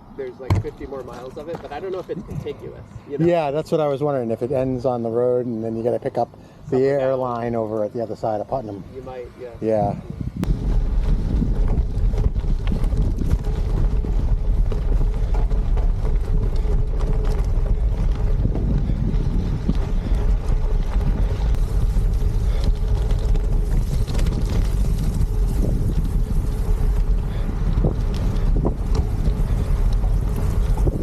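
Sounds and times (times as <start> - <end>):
wind buffeting microphone: 0.0 - 31.0
bicycle tyre noise: 0.2 - 31.0
bike clicks and rattles: 10.4 - 31.0.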